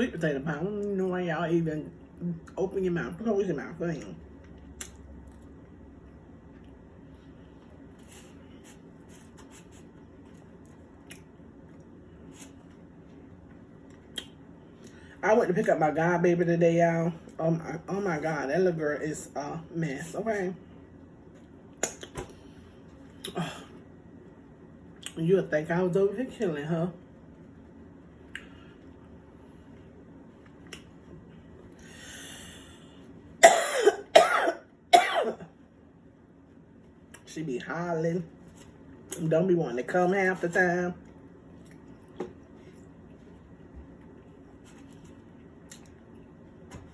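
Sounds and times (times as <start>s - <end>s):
low room hum: 0.0s - 46.9s
person coughing: 23.3s - 23.8s, 33.4s - 35.5s.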